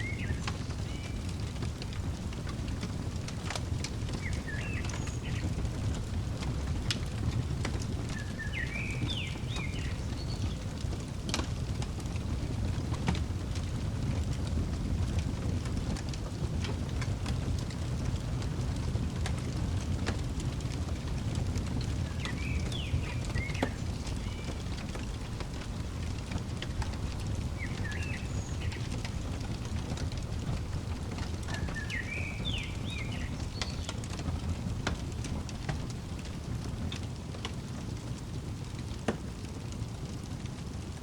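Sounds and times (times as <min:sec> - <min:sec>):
fire crackling and popping: 0:00.0 - 0:41.0
fire low rumble: 0:00.0 - 0:41.0
songbird twittering: 0:04.2 - 0:05.6, 0:08.1 - 0:10.6, 0:22.0 - 0:24.7, 0:27.5 - 0:29.2, 0:31.5 - 0:34.0.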